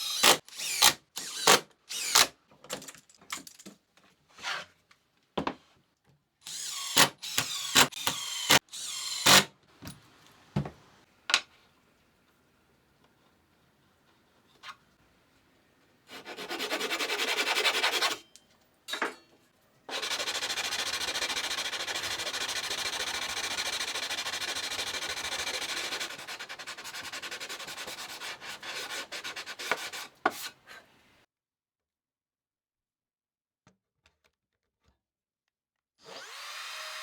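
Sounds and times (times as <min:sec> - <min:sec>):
sanding wood: 0:16.1 - 0:18.2, 0:19.9 - 0:30.7.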